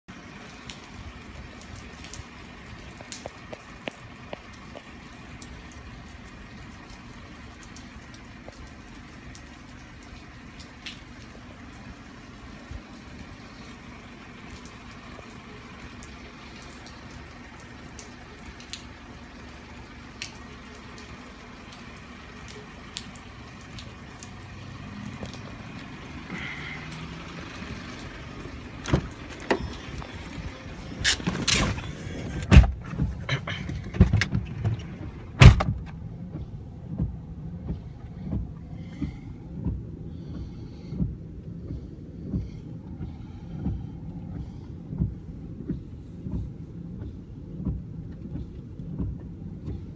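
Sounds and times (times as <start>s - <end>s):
trickling water: 0.1s - 46.4s
low rumble: 23.3s - 49.9s.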